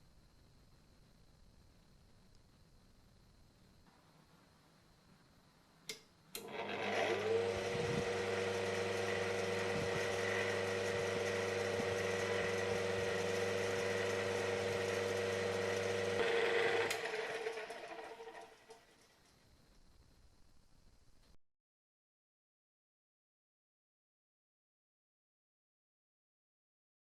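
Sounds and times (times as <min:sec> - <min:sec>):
electric fan motor humming: 0:06.3 - 0:18.9.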